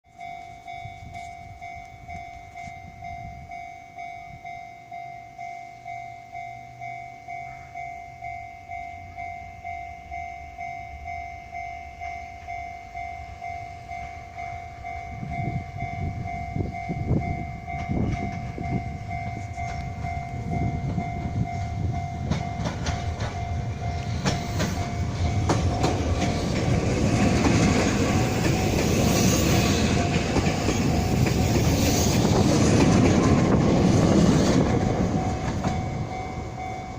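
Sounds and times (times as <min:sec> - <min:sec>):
level crossing bell ringing: 0:00.1 - 0:25.9, 0:34.8 - 0:36.9
wheels clattering over rail joints: 0:22.0 - 0:36.9.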